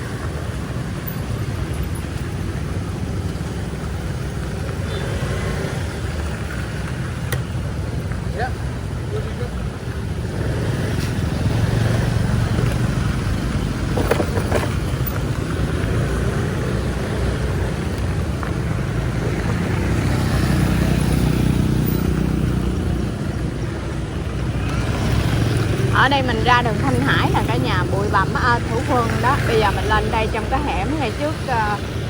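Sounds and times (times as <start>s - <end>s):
road or wind noise: 0.0s - 32.0s.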